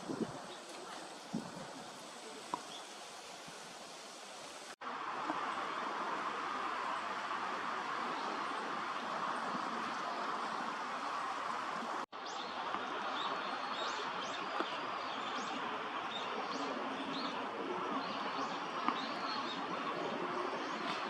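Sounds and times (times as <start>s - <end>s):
steady background hiss: 0.0s - 21.0s
small birds chirping: 9.4s - 21.0s.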